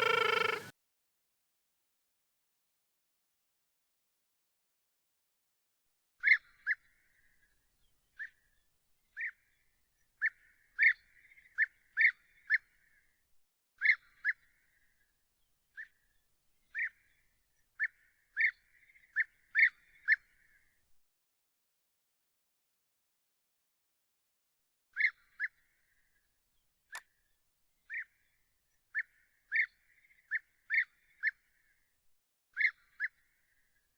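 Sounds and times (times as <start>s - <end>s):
bird giving sharp calls: 0.0s - 0.7s.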